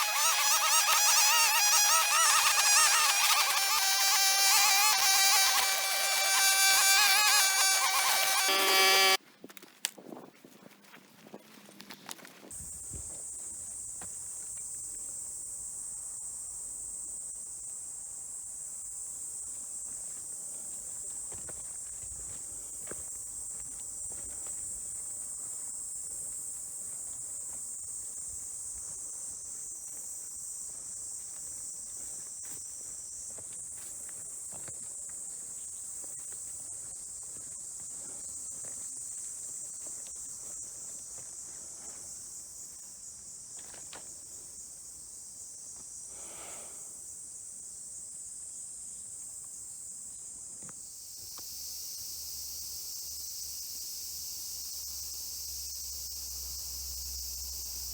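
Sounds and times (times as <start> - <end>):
insects shrilling: 0.0 - 9.2
steps in undergrowth: 7.9 - 15.0, 19.4 - 42.8
faint crackles in undergrowth: 9.2 - 15.2.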